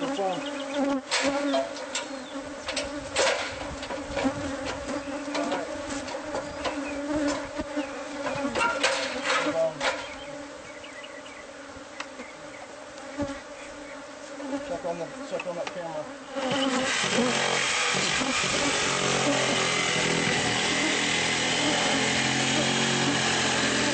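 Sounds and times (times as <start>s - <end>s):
bees buzzing: 0.0s - 23.9s
sharp clicks and knocks: 8.2s - 10.2s.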